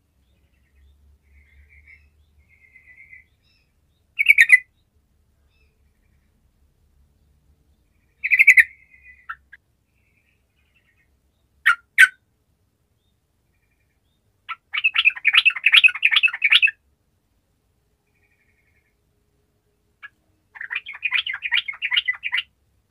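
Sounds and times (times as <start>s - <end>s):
bird chattering: 4.2s - 4.7s, 8.2s - 9.6s, 11.6s - 12.2s, 14.5s - 16.8s, 20.0s - 22.5s.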